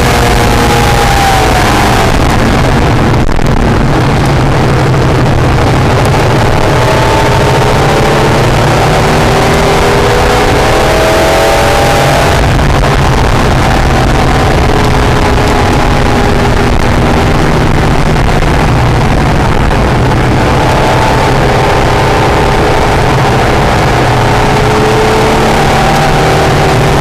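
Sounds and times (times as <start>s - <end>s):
car engine revving: 0.0s - 27.0s
wind and road noise: 0.0s - 27.0s.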